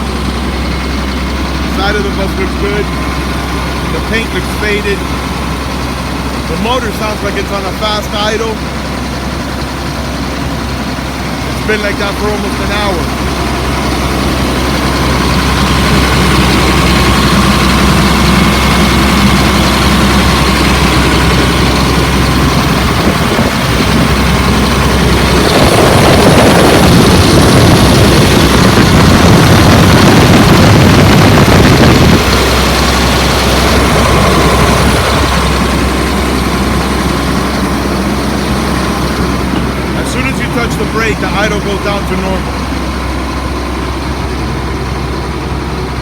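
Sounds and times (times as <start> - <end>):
bus engine fast idle: 0.0 - 46.0
loud rushing noise: 22.4 - 42.4.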